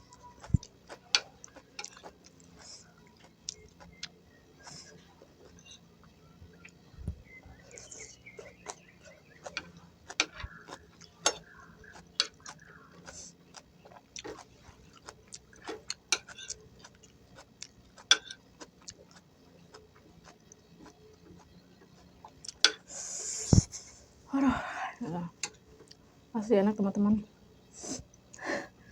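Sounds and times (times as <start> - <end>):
close chewing: 0.0 - 24.3, 25.2 - 26.3
sharp crunchy clicks: 7.6 - 23.0.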